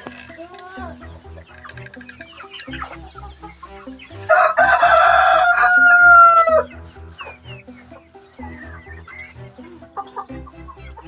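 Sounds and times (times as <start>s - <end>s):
rooster crowing: 4.3s - 6.7s.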